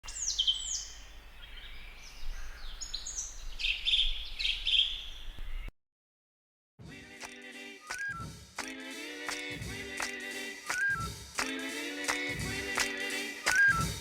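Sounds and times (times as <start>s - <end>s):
birds calling: 0.0s - 5.7s.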